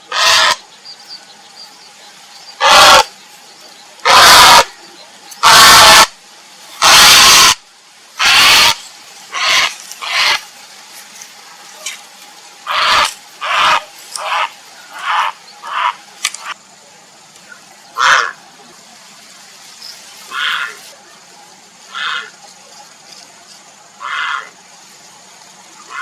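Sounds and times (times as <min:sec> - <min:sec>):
heron croaking calls: 0:00.0 - 0:00.6, 0:02.6 - 0:03.1, 0:04.0 - 0:04.7, 0:05.4 - 0:06.1, 0:06.8 - 0:07.6, 0:08.2 - 0:10.4, 0:12.7 - 0:16.0, 0:18.0 - 0:18.4, 0:21.9 - 0:22.3, 0:24.0 - 0:24.5.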